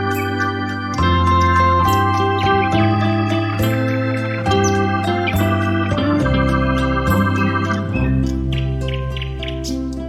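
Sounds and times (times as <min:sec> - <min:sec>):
electronic organ background music: 0:00.0 - 0:10.0.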